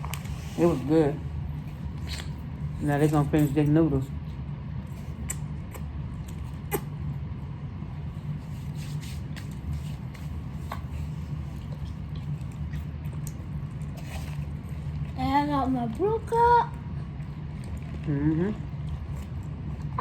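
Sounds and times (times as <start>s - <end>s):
noodle eating mouth sounds: 4.9s - 7.0s.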